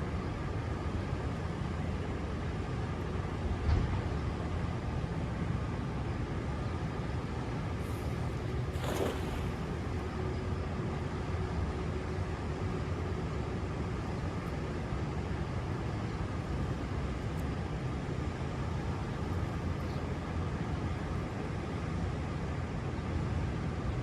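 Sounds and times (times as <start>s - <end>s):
brief hiss: 7.8s - 9.9s.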